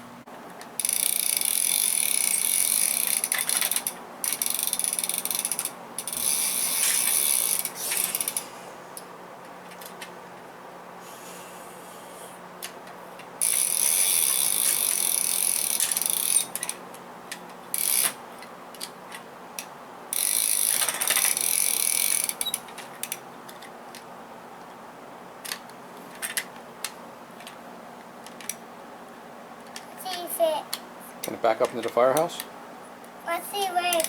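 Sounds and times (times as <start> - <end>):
toy ratchet clicking: 0.8 - 8.5, 13.4 - 16.8, 17.7 - 18.2, 20.1 - 23.2, 33.8 - 34.0.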